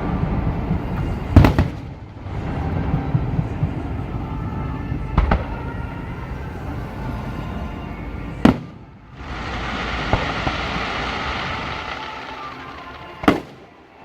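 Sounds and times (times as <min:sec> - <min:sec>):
firework shells bursting with bangs: 0:00.0 - 0:04.2, 0:08.4 - 0:14.0
continuous fireworks show noise: 0:00.0 - 0:14.0.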